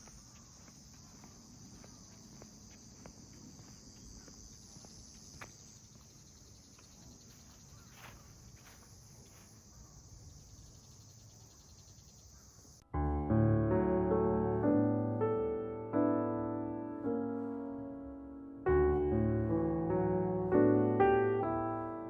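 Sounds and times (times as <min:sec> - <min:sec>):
high-pitched insect chorus: 0:00.0 - 0:12.8.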